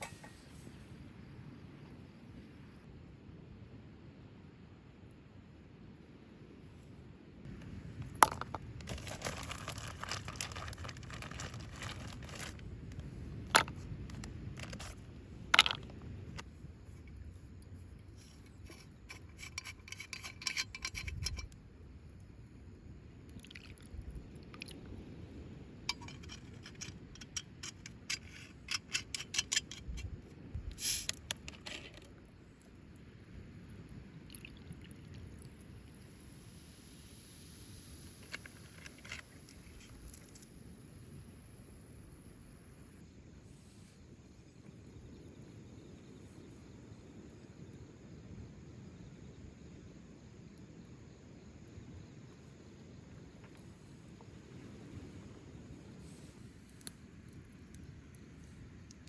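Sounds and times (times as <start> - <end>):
objects scraping and clinking: 8.2 - 12.6, 13.5 - 15.0, 18.0 - 21.6, 25.9 - 30.1, 31.0 - 32.1.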